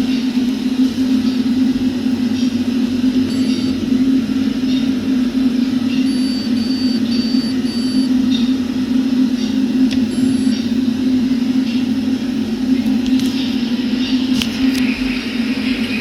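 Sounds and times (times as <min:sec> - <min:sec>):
washing machine humming: 0:00.0 - 0:16.0
short high-pitched tones: 0:03.3 - 0:03.8.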